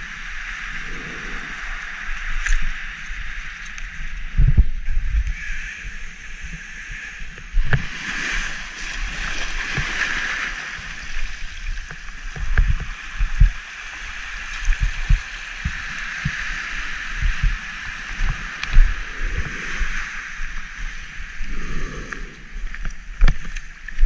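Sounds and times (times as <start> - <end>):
muffled surf washing over sand: 0.0 - 24.0
low thumps and knocks: 17.2 - 17.6.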